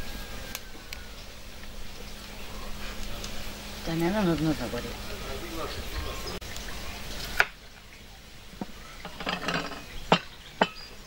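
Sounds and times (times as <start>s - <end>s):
dishes and cutlery clinking: 8.6s - 10.9s.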